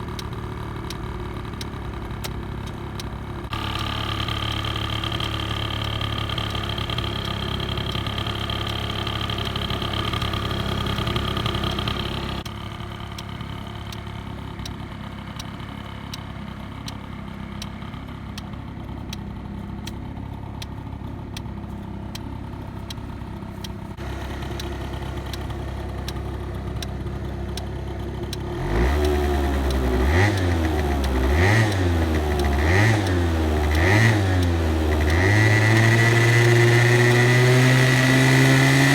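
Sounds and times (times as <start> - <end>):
scooter engine idling: 0.0 - 38.9
scooter engine revving: 0.0 - 38.9.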